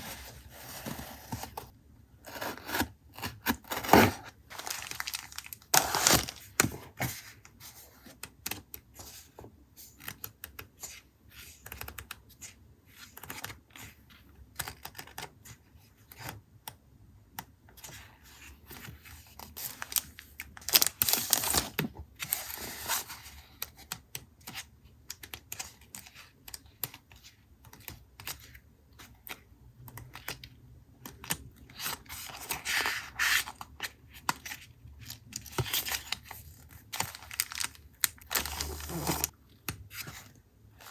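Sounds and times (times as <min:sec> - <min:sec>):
paper rustling: 0:00.0 - 0:01.7, 0:03.8 - 0:07.3.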